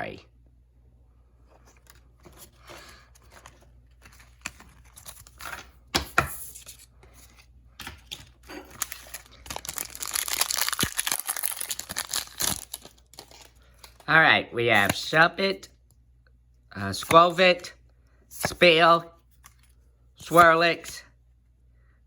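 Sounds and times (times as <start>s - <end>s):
foil pack crinkling: 8.0s - 14.0s
wrapper ripping: 8.0s - 14.0s.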